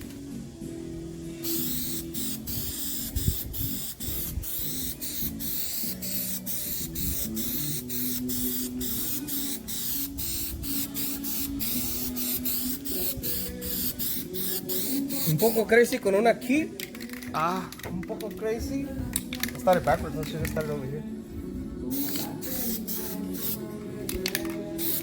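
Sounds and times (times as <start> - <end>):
background music: 0.0 - 25.0
aerosol can spraying: 1.2 - 16.2, 21.9 - 25.0.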